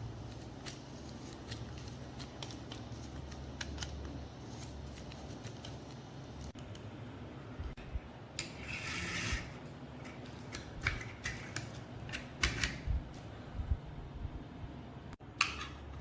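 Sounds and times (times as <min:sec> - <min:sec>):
metal scraping: 0:08.4 - 0:09.6.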